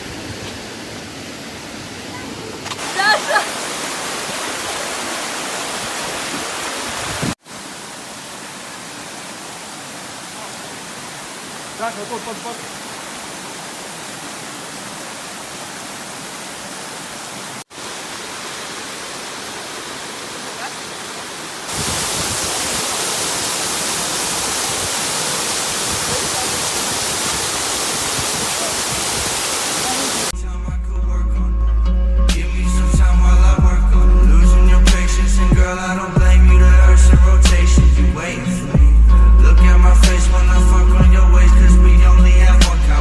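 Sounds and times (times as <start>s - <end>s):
waterfall roaring: 0.0s - 30.4s.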